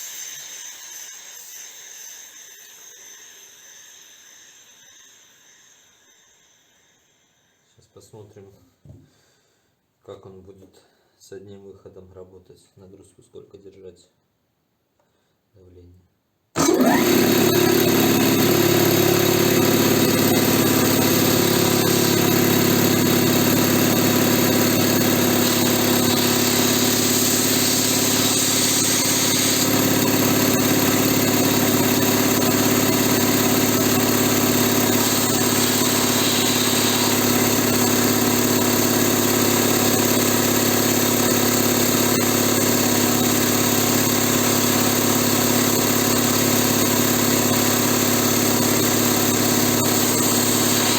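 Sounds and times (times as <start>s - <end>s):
piston air compressor running: 0.0s - 6.9s, 16.6s - 50.9s
air blowing from outlet: 16.6s - 39.6s.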